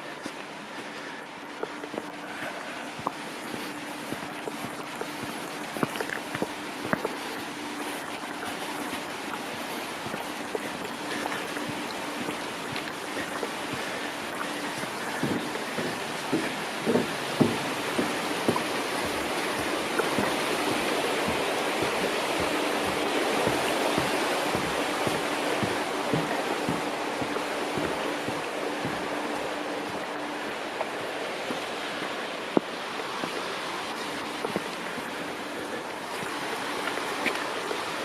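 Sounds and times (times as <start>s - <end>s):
faint steady hum: 0.0s - 38.0s
stream water rushing: 0.0s - 38.0s
small knocks and gurgles: 0.2s - 38.0s.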